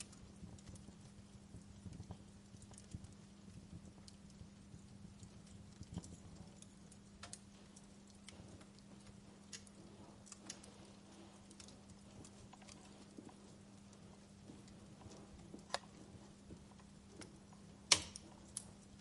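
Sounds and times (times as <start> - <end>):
steady low hum: 0.0 - 19.0
wood fire crackling: 0.0 - 19.0.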